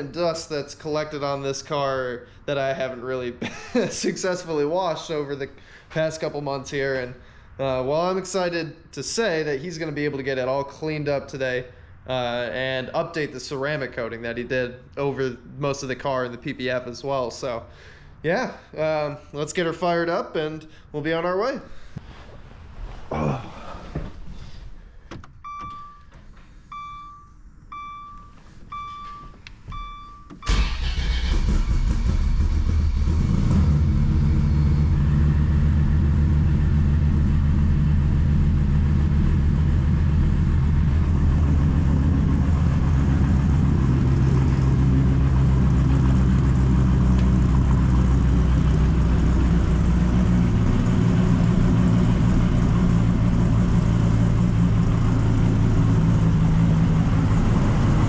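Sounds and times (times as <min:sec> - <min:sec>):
car engine starting and idling: 0:23.9 - 0:58.0
warning chime beeping: 0:26.7 - 0:30.3.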